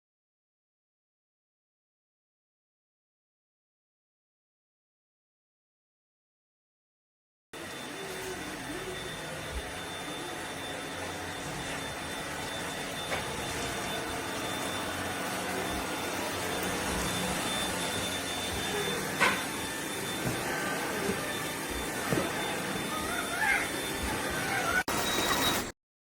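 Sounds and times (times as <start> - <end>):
stick vacuum running: 7.6 - 25.7.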